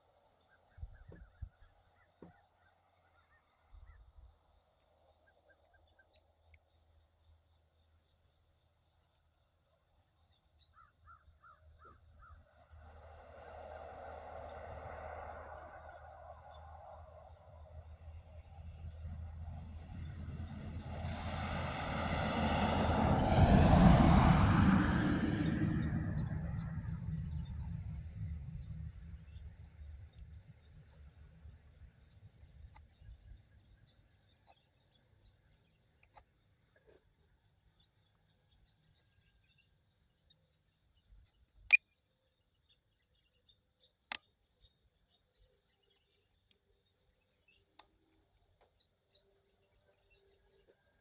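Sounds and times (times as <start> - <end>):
motor boat passing: 12.8 - 30.1.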